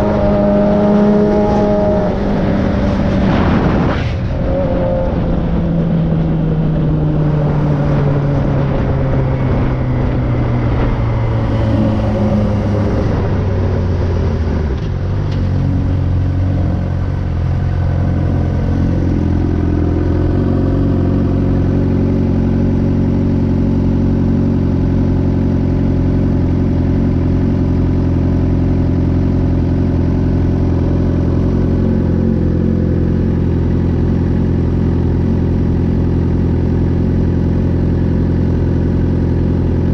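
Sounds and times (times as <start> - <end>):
motorcycle engine idling: 15.1 - 39.9.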